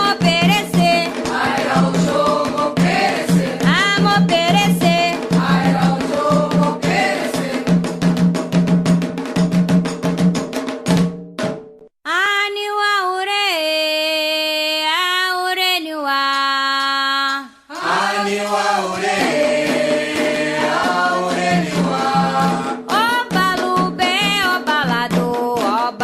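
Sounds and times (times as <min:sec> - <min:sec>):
group of voices singing: 0:00.0 - 0:07.8, 0:17.2 - 0:24.7.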